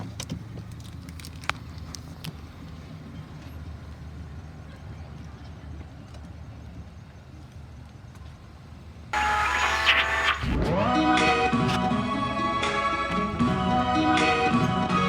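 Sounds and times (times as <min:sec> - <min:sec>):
golf cart rumbling: 0:10.8 - 0:15.0.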